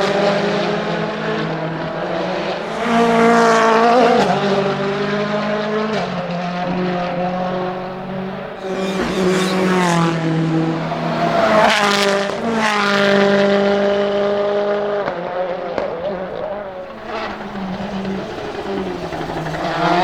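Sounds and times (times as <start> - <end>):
rally car engine revving: 0.0 - 20.0
sharp exhaust cracks: 0.0 - 20.0.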